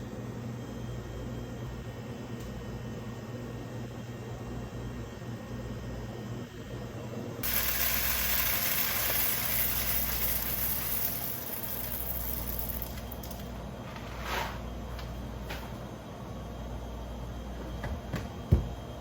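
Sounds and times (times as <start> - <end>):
loud hiss: 7.4 - 11.6.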